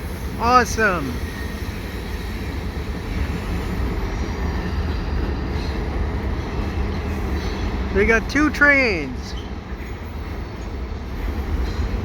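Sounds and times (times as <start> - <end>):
freight trains rumbling on rails: 0.0 - 12.0.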